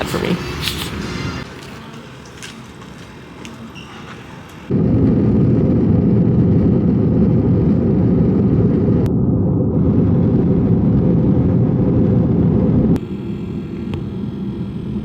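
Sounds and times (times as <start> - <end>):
jet airliner cabin rumble: 4.7 - 15.0.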